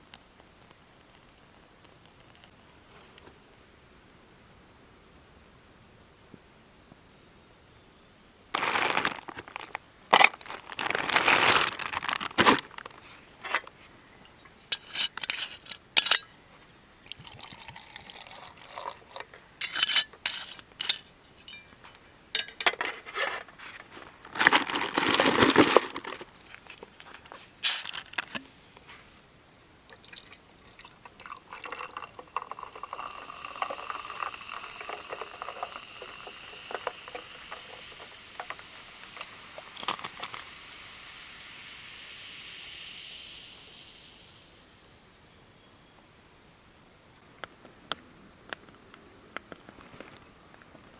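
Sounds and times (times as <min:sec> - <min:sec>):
liquid pouring: 0:17.1 - 0:19.3, 0:29.9 - 0:40.7
handling noise: 0:20.8 - 0:29.0, 0:33.5 - 0:40.5.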